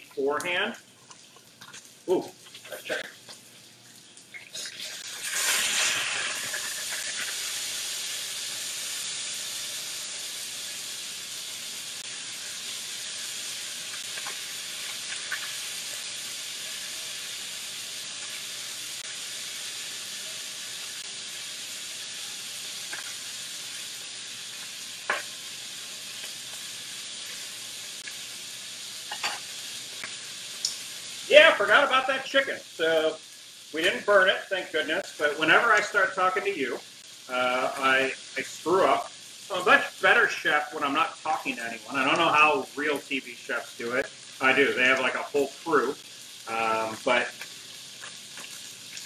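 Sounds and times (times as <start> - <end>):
chicken frying in hot oil: 0.0 - 49.0.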